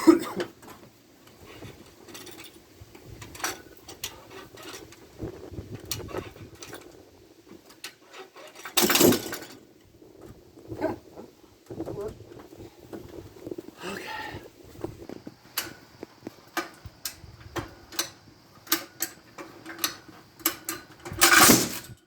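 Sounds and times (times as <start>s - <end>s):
metal clattering rattle: 1.5s - 10.4s, 16.5s - 22.0s
metal gear clicking and knocking: 7.7s - 9.6s, 17.9s - 22.0s.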